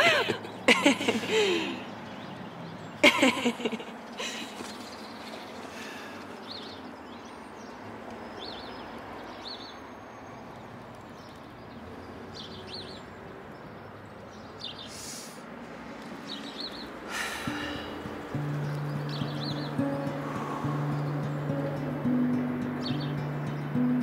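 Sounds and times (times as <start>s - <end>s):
outdoor background hiss: 0.0s - 24.0s
small bird chirping: 16.3s - 24.0s
low held musical tone: 18.0s - 24.0s.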